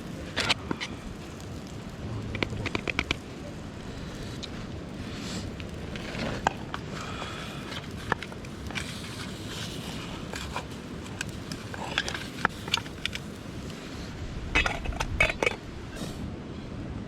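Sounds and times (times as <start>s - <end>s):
campfire crackling: 0.0s - 16.7s
sharp pops and clicks: 0.3s - 3.6s, 5.4s - 13.8s.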